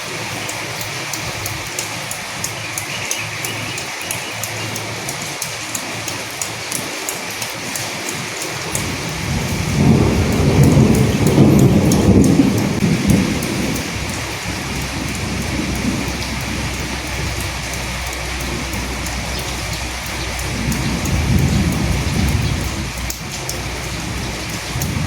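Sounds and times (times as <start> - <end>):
steady rain: 0.0 - 25.0
thunder rumbling: 8.6 - 25.0.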